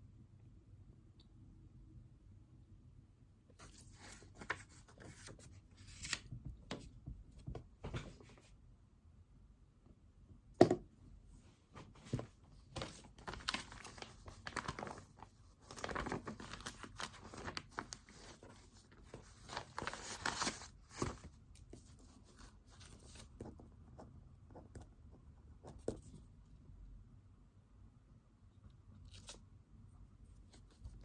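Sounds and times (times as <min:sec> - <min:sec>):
paper rustling: 0:03.6 - 0:06.9, 0:11.8 - 0:23.6.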